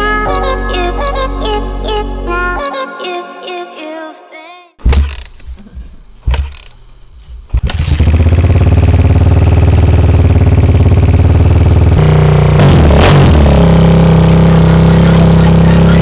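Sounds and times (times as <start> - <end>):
sharp knocks: 4.8 - 5.6, 6.2 - 6.7
motorcycle engine running: 7.6 - 16.0.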